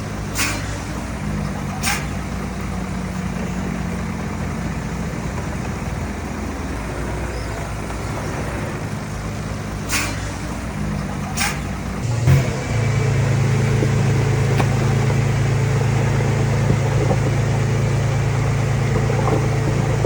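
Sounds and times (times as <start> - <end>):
heavy diesel machinery running: 0.0 - 20.0
sharp metallic clanks: 11.4 - 15.4.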